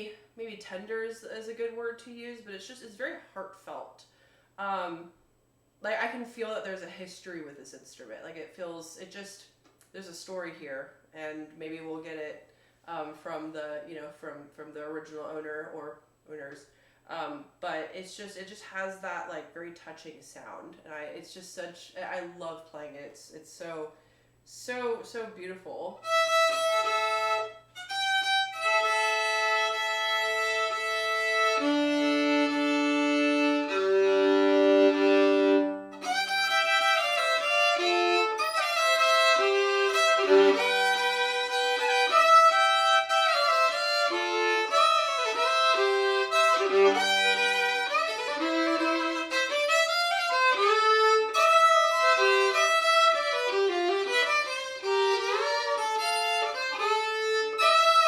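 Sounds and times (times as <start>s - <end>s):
bowed solo fiddle: 26.0s - 58.0s.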